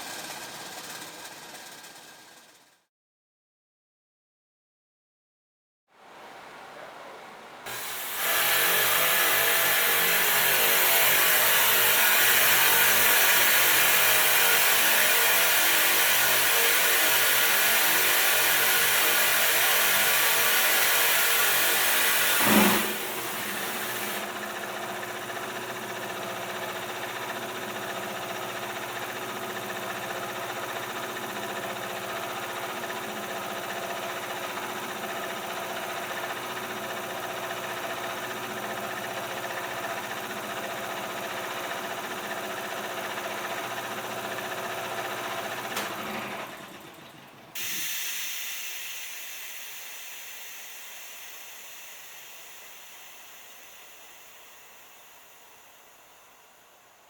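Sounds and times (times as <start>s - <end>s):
steam hissing: 6.1s - 24.4s, 47.6s - 57.0s
machines humming and whining: 21.4s - 24.8s.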